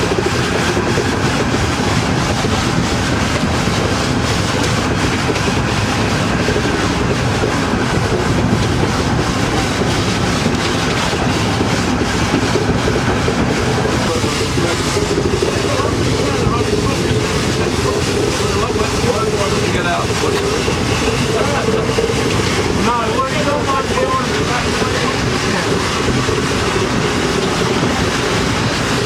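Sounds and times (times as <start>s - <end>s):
train rumbling on rails: 0.0s - 29.0s.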